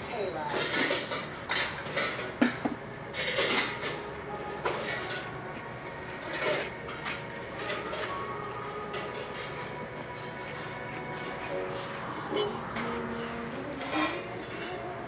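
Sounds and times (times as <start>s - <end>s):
metallic clanks and rattles: 0.5s - 4.0s.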